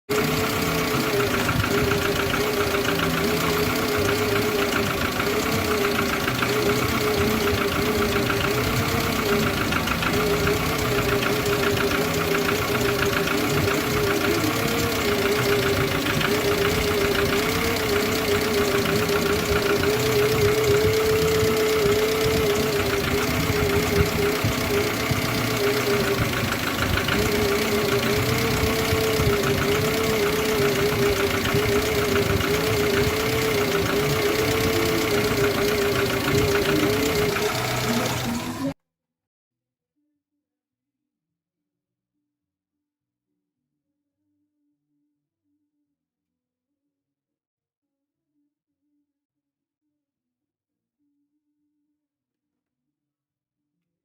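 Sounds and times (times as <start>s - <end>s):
car engine idling roughly: 0.1s - 38.8s.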